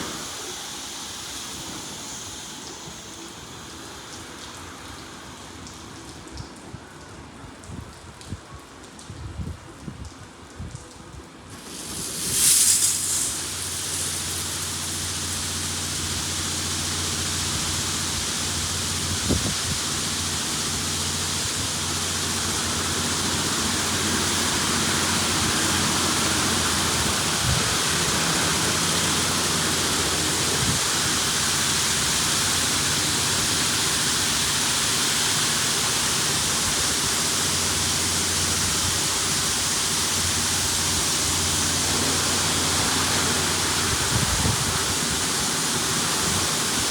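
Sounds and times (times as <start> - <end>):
water jets spraying onto car: 0.0 - 6.8, 11.5 - 46.9
low machine hum: 11.5 - 46.9.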